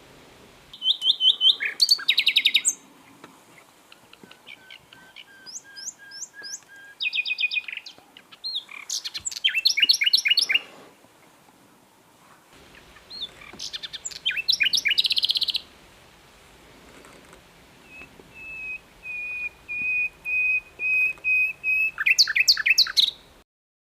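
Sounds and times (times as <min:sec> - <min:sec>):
nightingale singing: 0:00.7 - 0:02.8, 0:03.6 - 0:10.7, 0:12.6 - 0:15.8, 0:17.7 - 0:23.4.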